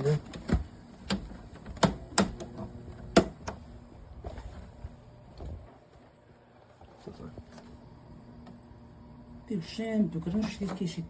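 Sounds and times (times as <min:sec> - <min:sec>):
air conditioner clicks and knocks: 0:00.0 - 0:06.2, 0:10.1 - 0:11.0.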